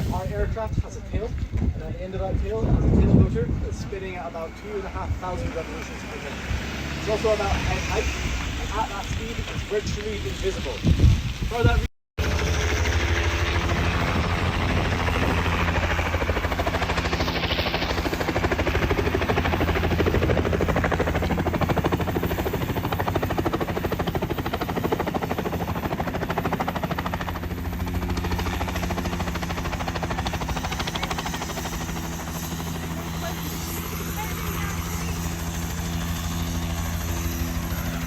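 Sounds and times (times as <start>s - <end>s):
helicopter engine hum: 0.0s - 10.5s, 12.2s - 38.0s
rotor blades beating: 11.6s - 38.0s.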